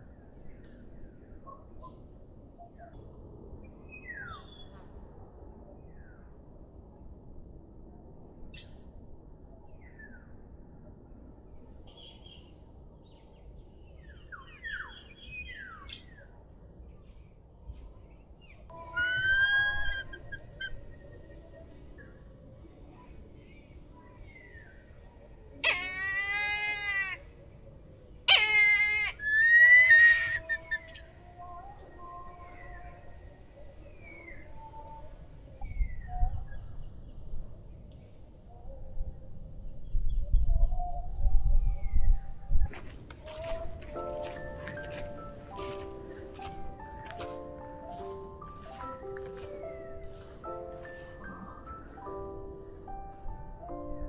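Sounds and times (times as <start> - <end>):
drawn-out wavering animal call: 18.7 - 20.8, 25.6 - 27.4, 28.3 - 31.3
small birds chirping: 41.8 - 52.0.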